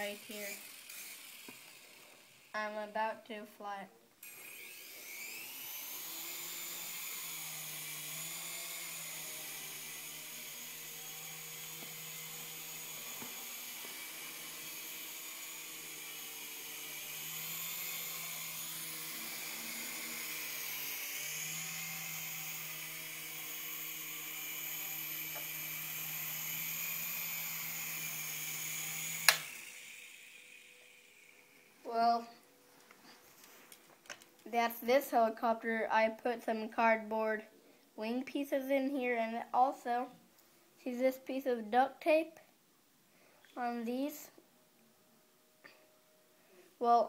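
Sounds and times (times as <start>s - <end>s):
toy helicopter motor whining: 0.0s - 2.8s, 4.2s - 32.5s.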